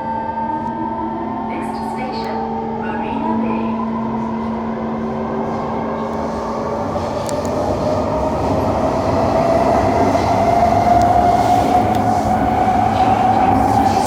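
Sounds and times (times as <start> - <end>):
train rail running noise: 0.0 - 14.0.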